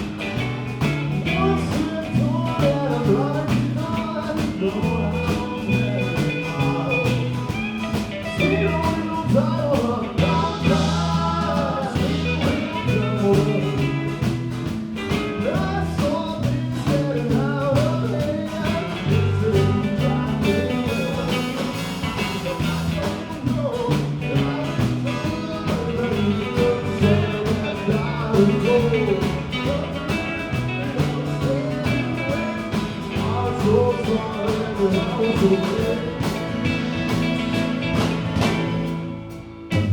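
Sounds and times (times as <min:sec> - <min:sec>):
bending guitar melody: 0:00.0 - 0:39.9
live rock band playing: 0:00.0 - 0:39.9.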